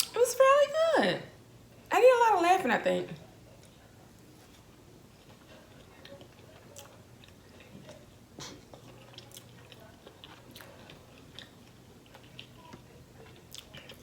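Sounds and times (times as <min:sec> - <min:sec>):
person chewing and biting food: 0:05.2 - 0:14.0.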